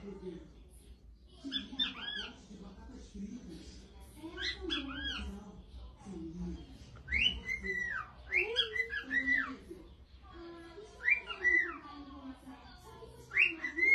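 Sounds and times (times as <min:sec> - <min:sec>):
bird whistling: 0:07.1 - 0:09.6.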